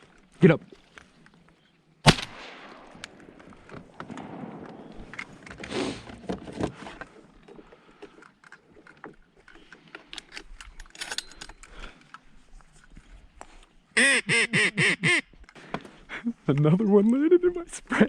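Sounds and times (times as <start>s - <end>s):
shotgun shot: 2.0s - 3.4s, 4.0s - 5.4s
rustling: 2.5s - 13.8s.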